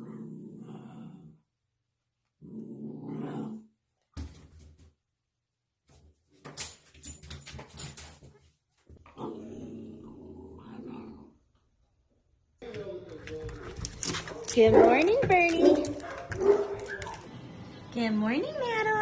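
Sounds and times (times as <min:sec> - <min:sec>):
dog growling and whining: 0:00.0 - 0:01.4, 0:02.4 - 0:03.7, 0:09.1 - 0:11.4.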